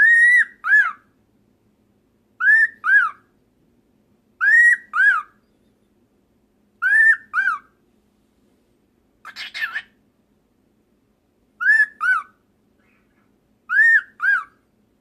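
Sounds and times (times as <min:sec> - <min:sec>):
cockatiel wolf whistle: 0:00.0 - 0:01.0, 0:02.4 - 0:03.2, 0:04.4 - 0:05.9, 0:06.8 - 0:07.7, 0:11.6 - 0:12.3, 0:13.7 - 0:14.6.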